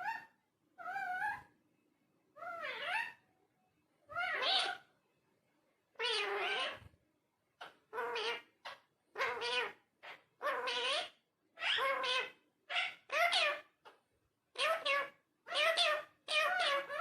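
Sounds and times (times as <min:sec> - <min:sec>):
parrot wavering calls: 0:00.0 - 0:01.5, 0:02.4 - 0:03.2, 0:04.1 - 0:04.9, 0:06.0 - 0:06.8, 0:07.6 - 0:17.0.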